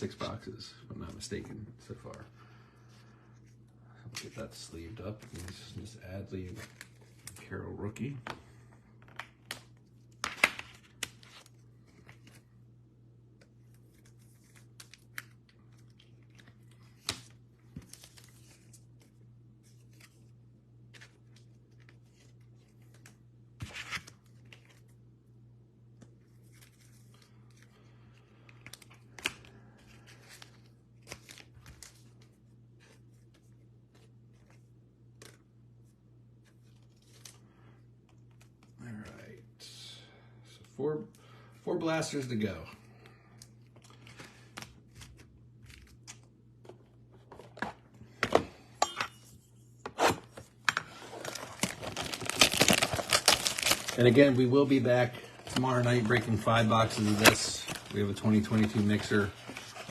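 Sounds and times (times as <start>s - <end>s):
low electrical hum: 0.0s - 59.9s
card packs crinkling and ripping: 4.0s - 8.3s, 13.6s - 25.0s, 26.1s - 35.4s, 36.6s - 37.4s, 50.0s - 59.9s.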